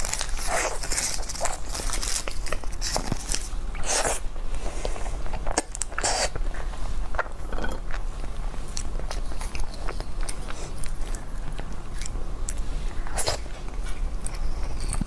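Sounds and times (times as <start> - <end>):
person chewing: 7.7 - 15.0.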